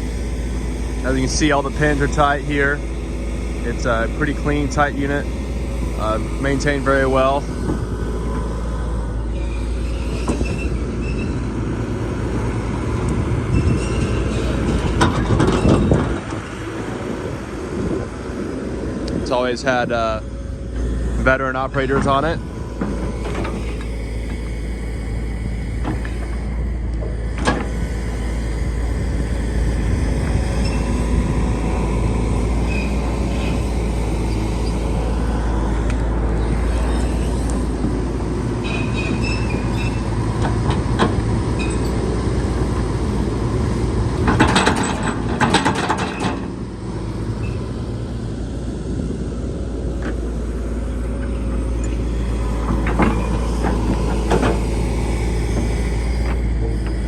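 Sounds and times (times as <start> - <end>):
excavator engine hum: 0.0 - 57.0
hydraulic whine: 0.0 - 57.0
clanking and scraping: 13.0 - 16.7, 21.6 - 34.8, 44.2 - 46.6, 51.2 - 57.0.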